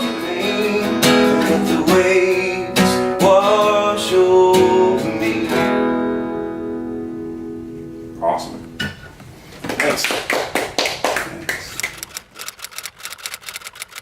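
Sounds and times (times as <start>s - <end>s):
acoustic guitar strumming: 0.0s - 9.1s.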